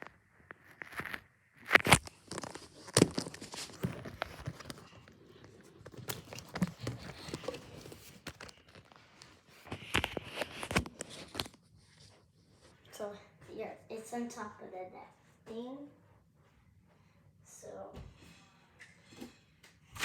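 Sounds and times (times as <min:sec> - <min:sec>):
rustling: 0:00.0 - 0:12.9.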